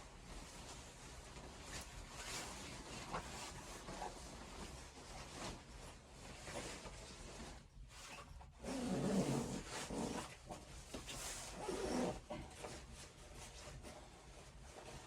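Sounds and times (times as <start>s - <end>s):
faint rustling and scratching: 0.0s - 15.0s.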